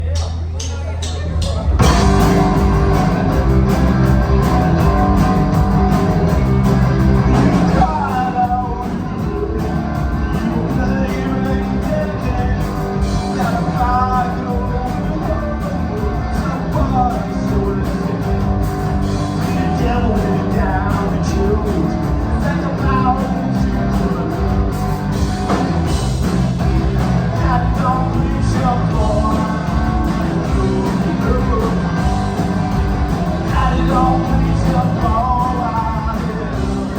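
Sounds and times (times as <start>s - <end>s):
guitar: 0.0s - 36.9s
rock music: 0.0s - 36.9s
person singing: 7.3s - 24.7s, 26.6s - 32.4s, 33.4s - 36.9s.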